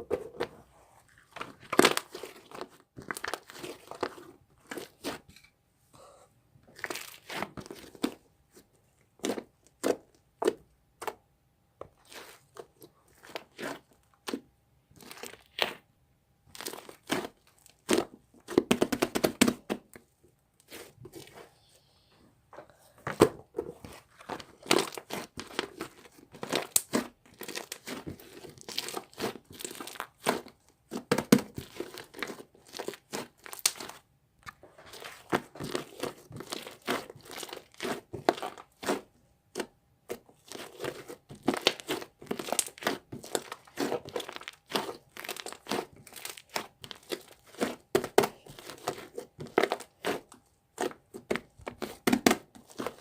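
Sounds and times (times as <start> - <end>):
crinkling material being squeezed: 1.0 - 5.3, 23.8 - 53.0.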